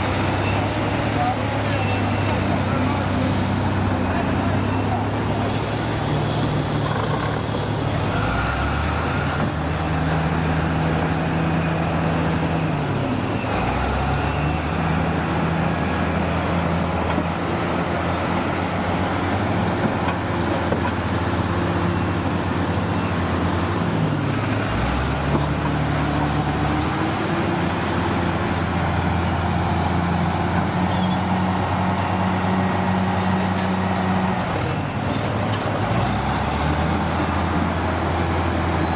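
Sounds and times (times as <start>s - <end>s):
heavy diesel engine revving: 0.0s - 38.9s.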